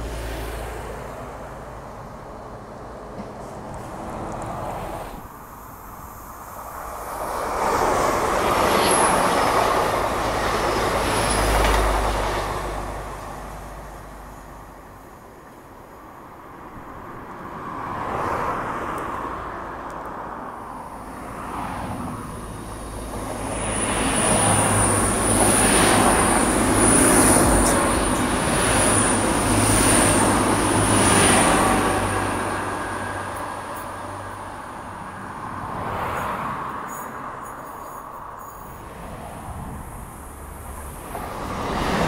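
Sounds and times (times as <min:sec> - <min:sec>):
second train approaching: 0:00.0 - 0:19.7, 0:20.3 - 0:42.0
train passing at speed: 0:00.0 - 0:42.0
high-pitched train whine: 0:05.1 - 0:16.3, 0:20.7 - 0:42.0.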